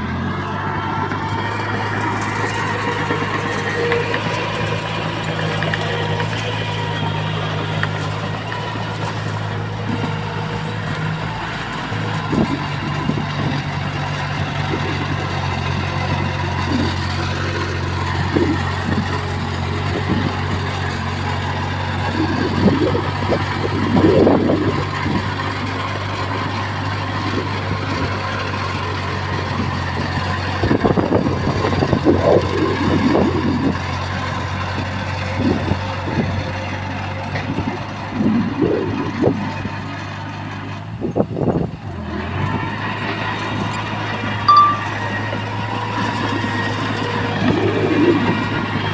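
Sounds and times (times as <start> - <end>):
diesel engine running: 0.0 - 48.9
machinery clanks and rattles: 1.0 - 38.0.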